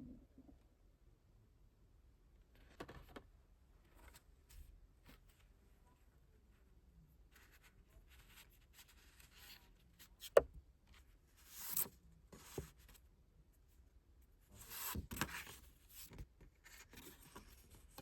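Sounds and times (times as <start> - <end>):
paper and card rustling: 11.4 - 12.9.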